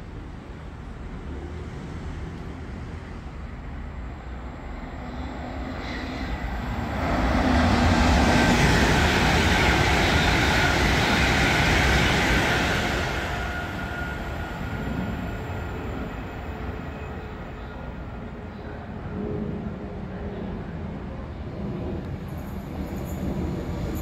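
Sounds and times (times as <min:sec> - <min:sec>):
diesel locomotive approaching: 0:00.0 - 0:24.0
train wheels on rail: 0:01.2 - 0:17.2.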